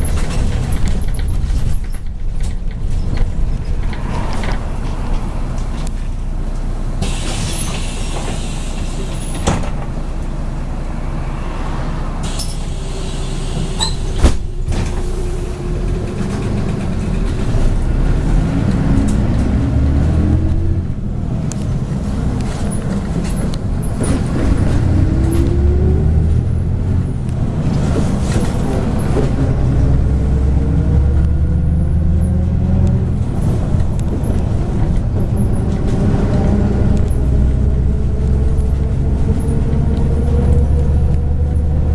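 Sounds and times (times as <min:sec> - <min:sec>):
bus diesel engine accelerating: 0:00.0 - 0:41.9
air hiss: 0:07.0 - 0:09.2.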